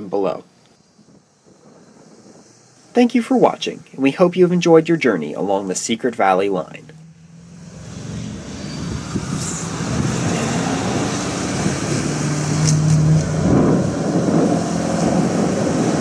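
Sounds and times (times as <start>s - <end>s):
passing vehicle rumble: 0.0s - 16.0s.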